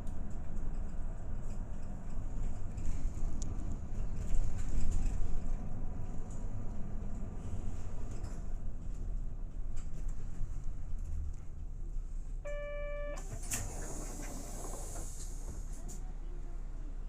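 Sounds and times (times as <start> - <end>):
bus engine and road rumble: 0.0 - 17.0
electronic beep: 12.5 - 13.2
short air hiss: 13.5 - 15.7.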